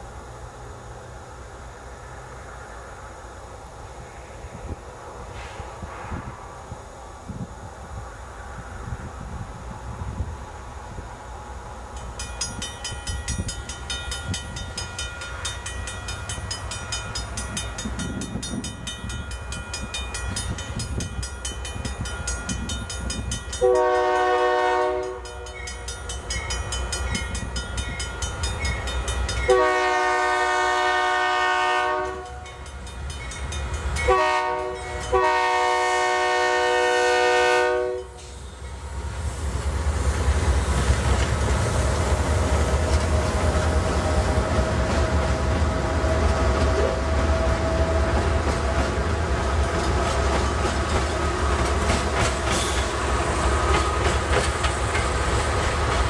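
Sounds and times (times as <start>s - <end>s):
locomotive rumble: 8.8s - 56.0s
locomotive air horn blasts: 23.6s - 25.6s, 29.5s - 32.5s, 34.1s - 38.2s.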